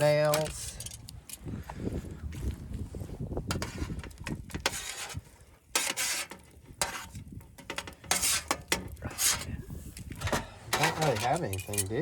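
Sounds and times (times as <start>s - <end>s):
knife scraping on metal sheet: 3.5s - 9.6s, 10.2s - 12.0s.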